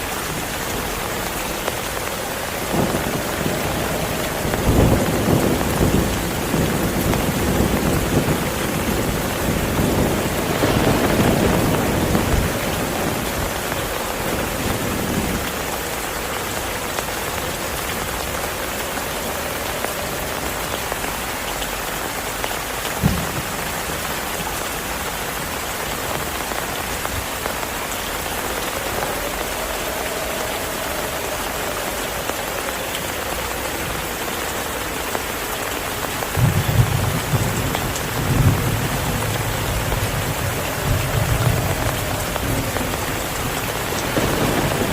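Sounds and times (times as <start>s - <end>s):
heavy rain falling: 0.0s - 44.9s
low thunder rumble: 0.3s - 21.8s, 26.1s - 44.9s.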